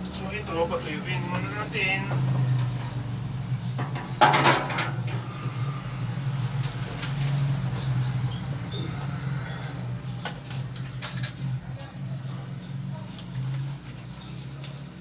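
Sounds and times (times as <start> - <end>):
clatter of parts being handled: 3.8 - 5.2.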